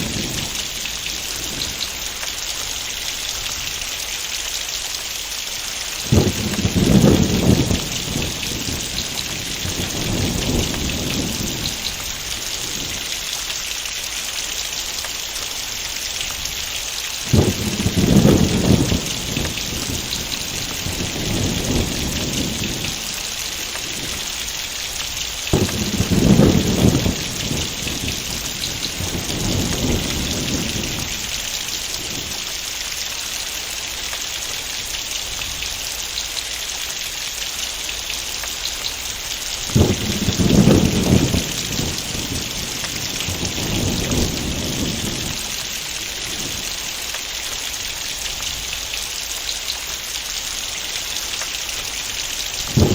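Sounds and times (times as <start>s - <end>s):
thunder cracking and rumbling: 0.0s - 3.8s, 5.8s - 13.5s, 15.6s - 33.1s, 38.6s - 48.8s, 51.7s - 52.9s
heavy rain pouring: 0.0s - 52.9s.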